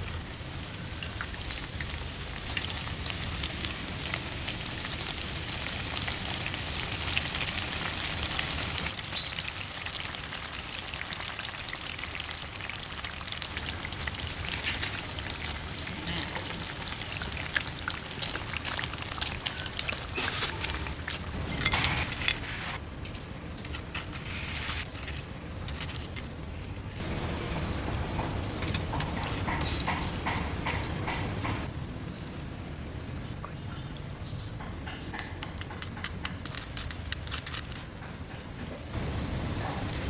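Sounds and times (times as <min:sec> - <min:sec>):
vegetables deep-frying in oil: 0:00.0 - 0:22.7.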